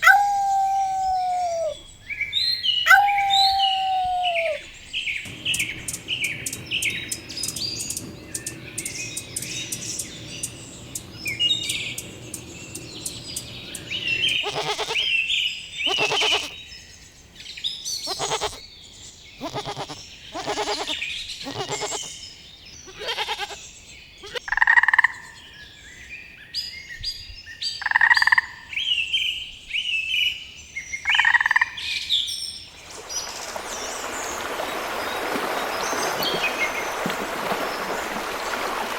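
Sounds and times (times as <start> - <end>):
animal calls: 0.0 - 1.8, 2.8 - 4.7, 5.3 - 15.1, 15.8 - 16.6, 18.1 - 18.6, 19.4 - 22.1, 22.8 - 23.6, 24.2 - 24.4
small birds chirping: 0.0 - 16.6, 17.5 - 24.4.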